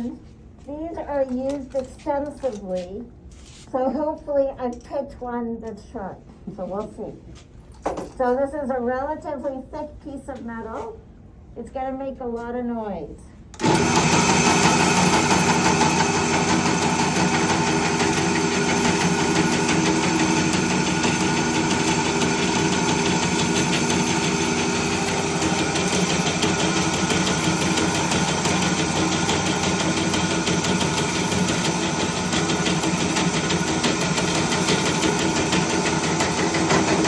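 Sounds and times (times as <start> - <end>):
drill press drilling into metal: 13.6 - 37.0.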